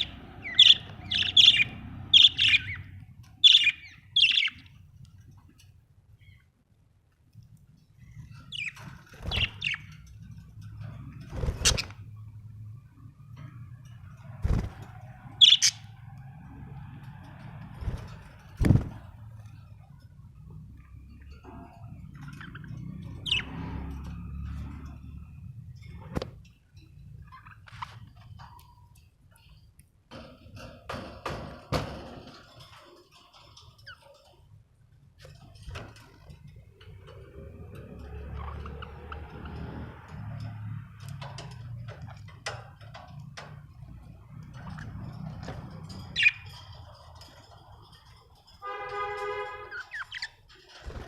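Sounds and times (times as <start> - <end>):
budgerigar chirping: 0.0 - 4.6
budgerigars chirping: 0.0 - 4.8, 8.2 - 10.0, 15.4 - 16.0, 22.1 - 23.6, 46.0 - 46.8, 49.6 - 50.4.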